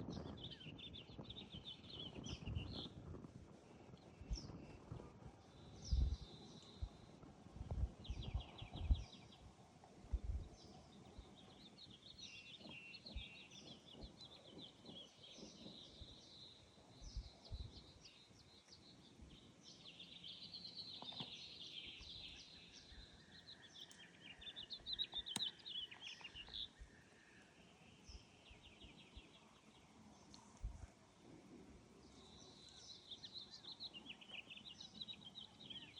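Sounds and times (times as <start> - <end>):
small birds singing and chirping: 0.0 - 35.9.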